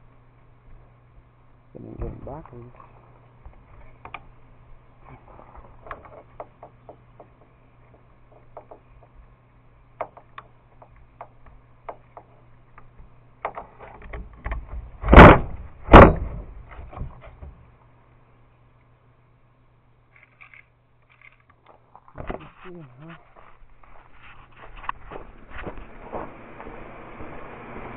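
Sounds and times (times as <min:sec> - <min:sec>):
faint low hum: 0:00.0 - 0:27.9
loud knocks: 0:05.9 - 0:09.2, 0:15.0 - 0:17.5.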